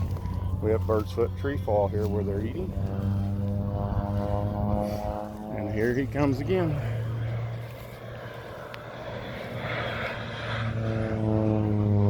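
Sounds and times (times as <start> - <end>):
airplane engine droning: 0.0 - 12.0.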